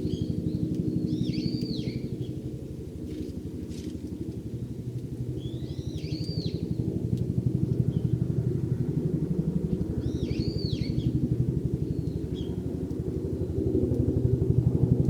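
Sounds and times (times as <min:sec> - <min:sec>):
engine running with low throb: 0:00.0 - 0:15.0
bird chirps: 0:01.1 - 0:02.0, 0:10.0 - 0:11.1.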